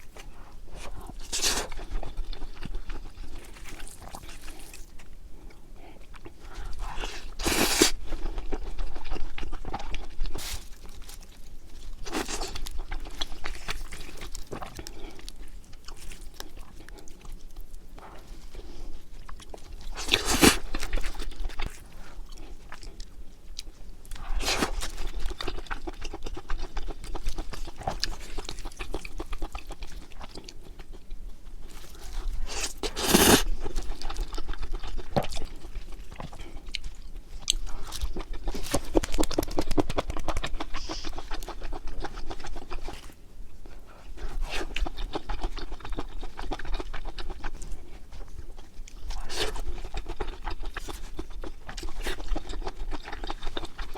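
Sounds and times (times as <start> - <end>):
close chewing and crunching: 0.0 - 53.9.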